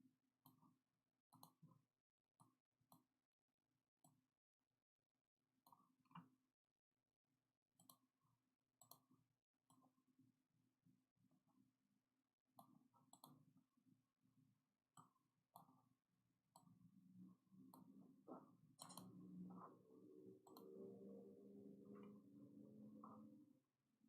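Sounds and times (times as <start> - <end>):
faint low hum: 16.6 - 23.7.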